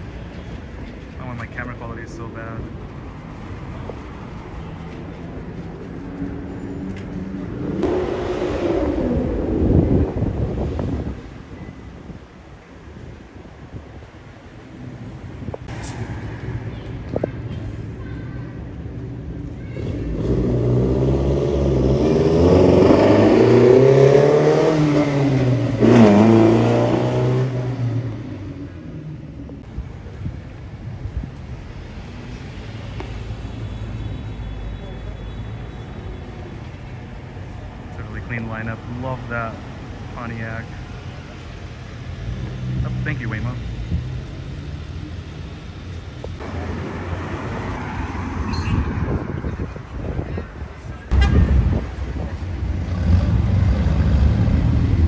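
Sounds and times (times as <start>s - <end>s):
low vehicle rumble: 0.0s - 55.0s
car engine accelerating: 5.6s - 16.4s, 19.7s - 29.0s, 37.8s - 55.0s.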